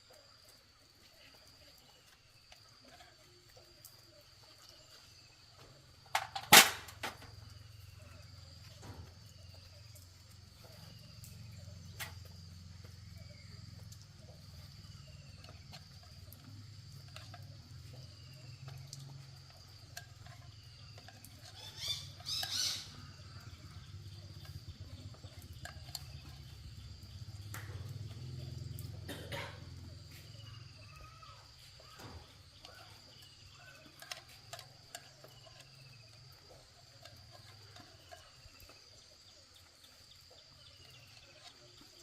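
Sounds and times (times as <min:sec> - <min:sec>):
faint scattered ticks: 0:00.0 - 0:42.0.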